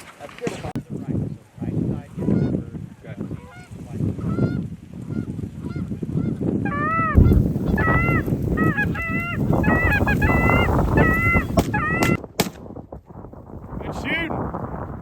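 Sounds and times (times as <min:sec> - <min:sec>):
geese honking: 0:03.4 - 0:12.2.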